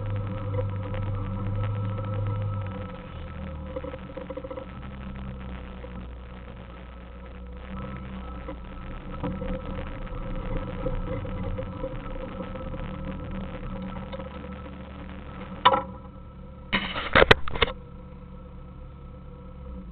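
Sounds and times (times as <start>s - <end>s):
car engine running: 0.0s - 19.9s.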